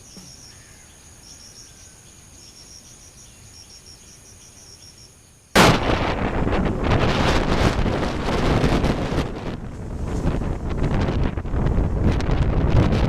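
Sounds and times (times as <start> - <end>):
insects chirping: 0.0 - 7.6
wind buffeting microphone: 5.6 - 13.0.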